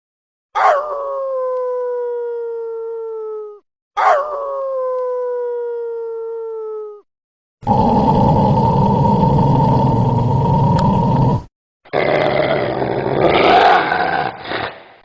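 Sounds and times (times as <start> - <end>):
dog howling: 0.6 - 3.4, 4.0 - 5.4
rough raspy growl: 7.6 - 14.9.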